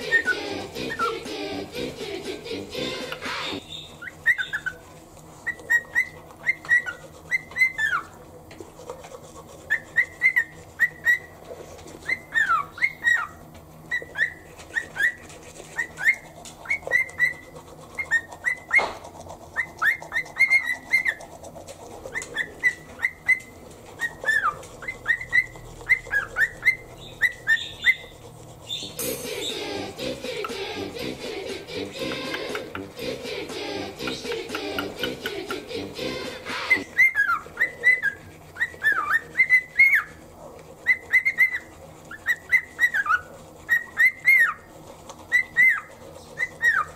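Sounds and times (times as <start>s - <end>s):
cockatiel whistling: 0.0s - 1.2s, 2.9s - 4.8s, 5.4s - 8.1s, 9.7s - 11.3s, 12.0s - 15.2s, 22.1s - 28.1s, 36.2s - 40.2s, 40.8s - 44.7s.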